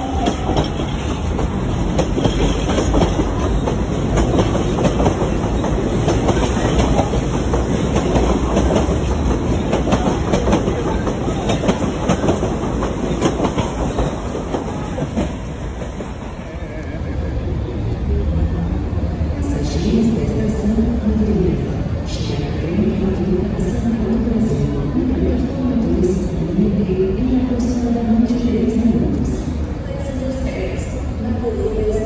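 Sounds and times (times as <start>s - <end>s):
train wheels clattering over rails: 0.0s - 16.6s
train rumble: 0.0s - 32.0s.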